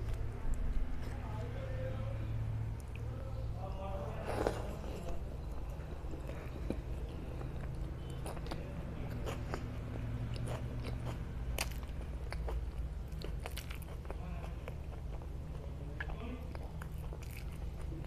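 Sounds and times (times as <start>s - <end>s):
steady low hum: 0.0s - 18.0s
wet chewing with mouth clicks: 2.7s - 3.2s, 4.2s - 18.0s.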